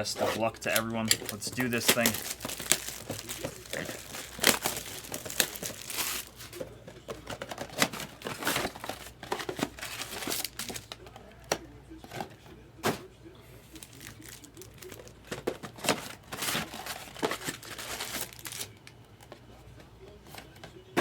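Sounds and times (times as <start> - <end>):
plastic wrapping crinkling and tearing: 0.0 - 6.7, 7.3 - 11.1, 13.7 - 18.9.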